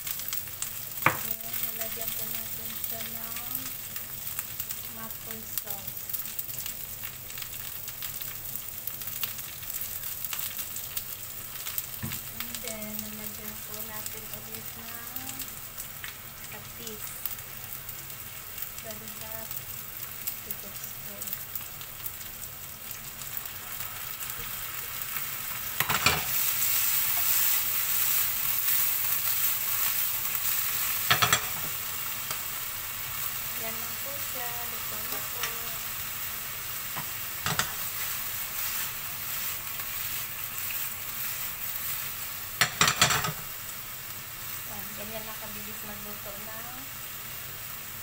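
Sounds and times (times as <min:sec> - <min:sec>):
food sizzling in a pan: 0:00.0 - 0:48.0
pan and utensil clatter: 0:25.8 - 0:26.4, 0:31.0 - 0:31.8, 0:37.0 - 0:37.9, 0:42.6 - 0:43.5.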